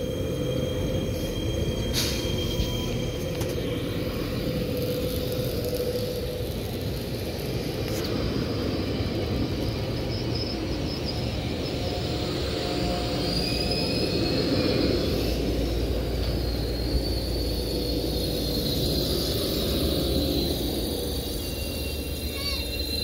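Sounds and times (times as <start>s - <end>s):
train rolling past rumble: 0.0s - 23.0s.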